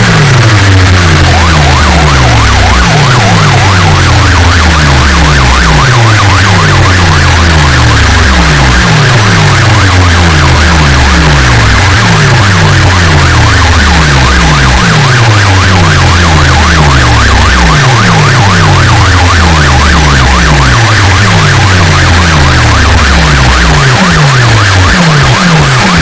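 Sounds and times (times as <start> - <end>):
loud electronic dance music: 0.0 - 26.0
wailing siren effect: 0.0 - 26.0.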